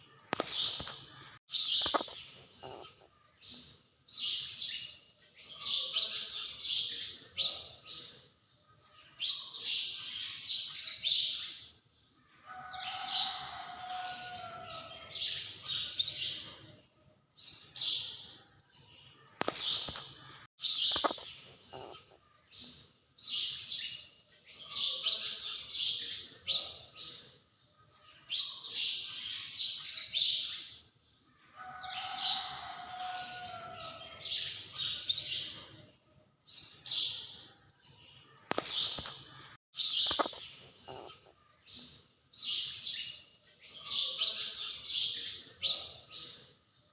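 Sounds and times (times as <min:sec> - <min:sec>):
birds chirping: 0:00.0 - 0:46.9
sharp clicks: 0:00.3 - 0:01.0, 0:01.8 - 0:02.2, 0:19.4 - 0:20.1, 0:38.5 - 0:39.2.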